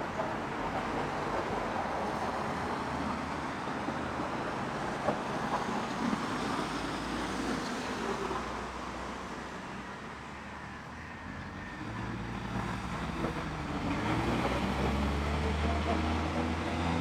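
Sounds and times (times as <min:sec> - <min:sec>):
road traffic hum: 0:09.2 - 0:17.0.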